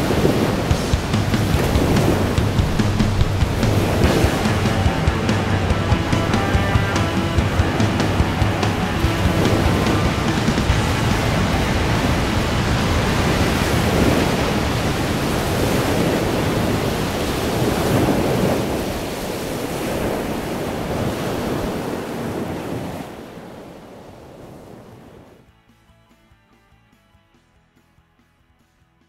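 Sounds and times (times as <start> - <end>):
wind buffeting microphone: 0.0 - 25.4
waves breaking and surging: 0.0 - 25.5.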